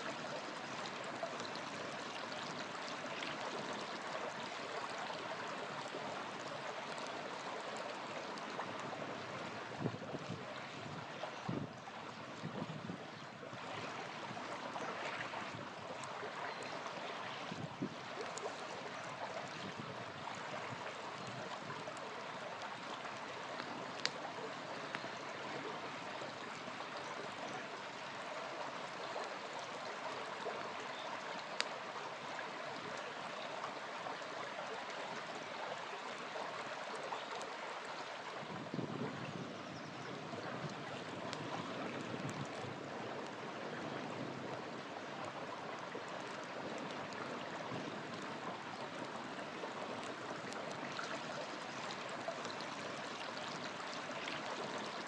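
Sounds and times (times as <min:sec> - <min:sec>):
river flowing: 0:00.0 - 0:55.0
campfire popping: 0:21.1 - 0:25.2.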